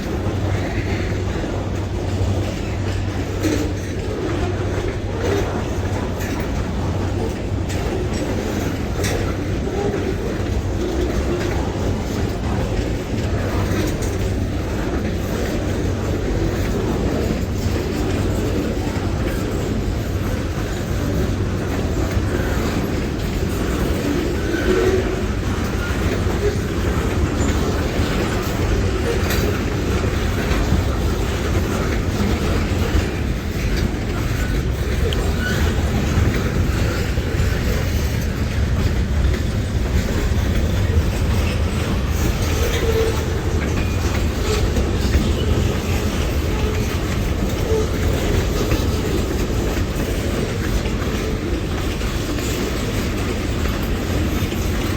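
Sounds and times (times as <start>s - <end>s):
train wheels rumbling on rail: 0.0s - 54.9s
wheels clicking over rail joints: 0.0s - 54.9s.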